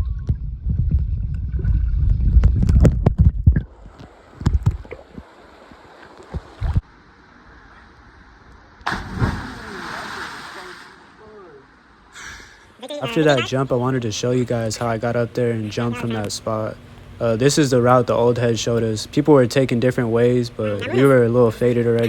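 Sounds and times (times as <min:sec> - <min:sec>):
water sloshing and gurgling: 0:00.8 - 0:07.1, 0:08.8 - 0:12.8.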